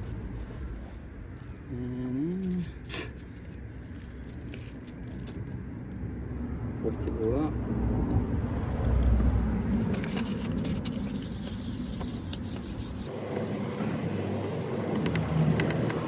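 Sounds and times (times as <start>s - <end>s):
low rumble: 0.0s - 11.2s
sandpaper rubbing strokes: 9.7s - 16.0s.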